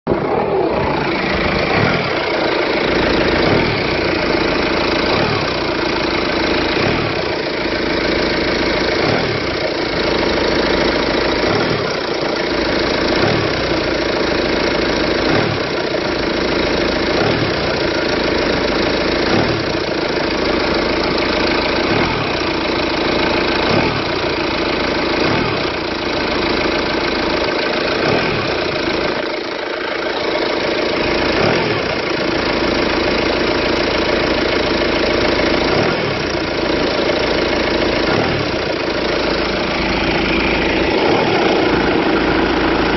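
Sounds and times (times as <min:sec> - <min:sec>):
diesel engine idling: 0:00.0 - 0:42.9
low engine thump: 0:00.8 - 0:07.4, 0:19.3 - 0:19.8, 0:21.8 - 0:22.4, 0:38.1 - 0:38.6.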